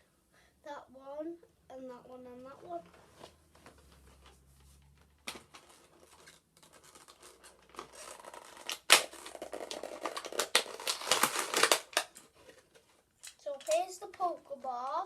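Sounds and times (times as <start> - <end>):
cardboard and plastic tearing: 4.9 - 13.0.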